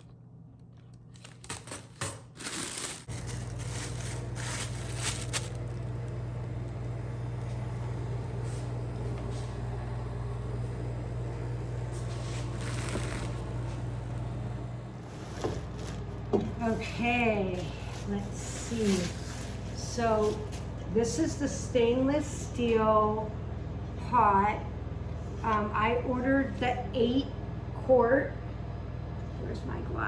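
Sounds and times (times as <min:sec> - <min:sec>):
steady low hum: 0:00.0 - 0:30.0
packaging crinkling: 0:00.7 - 0:06.2, 0:12.4 - 0:13.4, 0:15.1 - 0:16.3.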